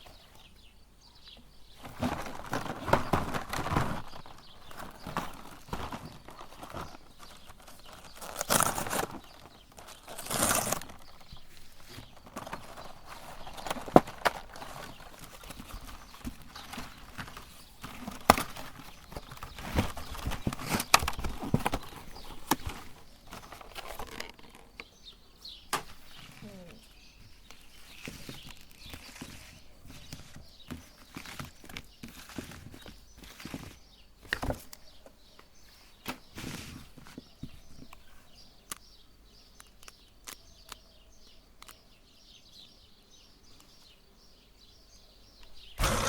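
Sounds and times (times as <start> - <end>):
meat grinder clicking and knocking: 45.8 - 46.0
rustling bursts: 45.8 - 46.0.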